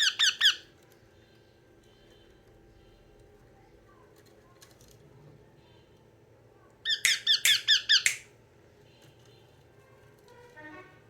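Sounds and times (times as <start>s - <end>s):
parakeet shrill calls: 0.0s - 0.6s, 6.9s - 8.3s.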